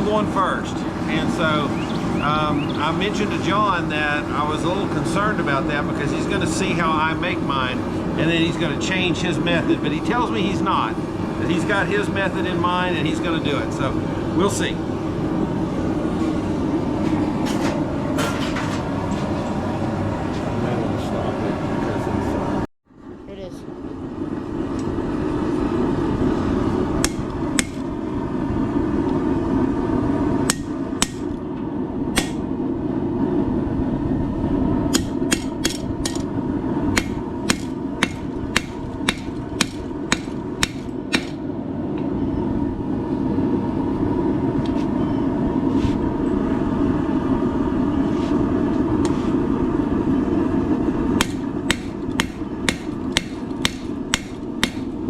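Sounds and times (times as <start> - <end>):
hammer striking steel on anvil: 27.0 - 27.9, 30.5 - 31.4, 32.2 - 32.5, 34.9 - 36.3, 37.0 - 41.4, 51.2 - 55.0.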